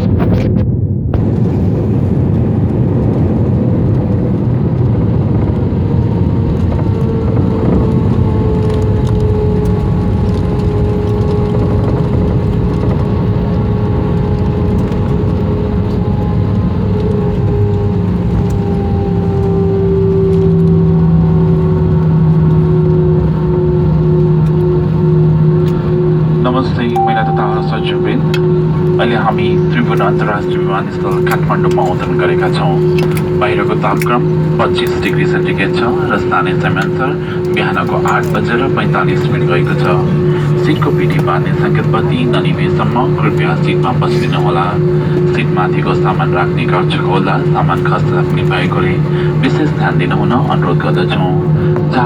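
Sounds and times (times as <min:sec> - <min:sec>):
jet engine rumble and whine: 0:00.0 - 0:52.0
low drone: 0:26.9 - 0:52.0.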